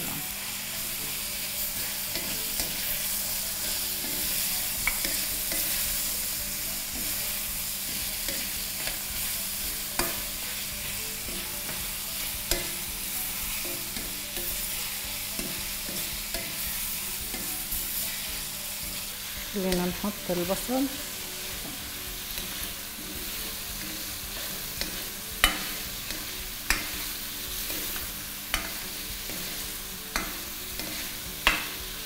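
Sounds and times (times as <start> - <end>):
carrots sizzling in oil: 0.0 - 32.0
spatula knocking against a pan: 30.2 - 31.8.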